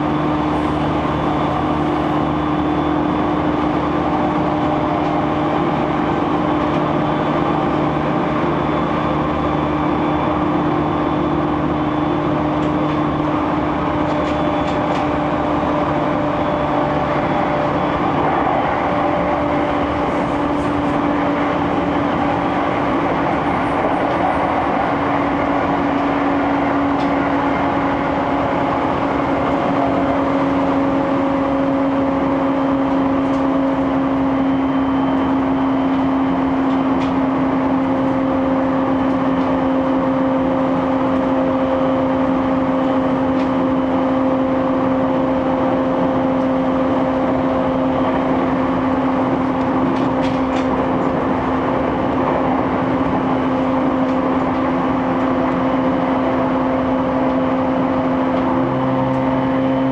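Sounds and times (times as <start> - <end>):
train running rumble: 0.0 - 59.9.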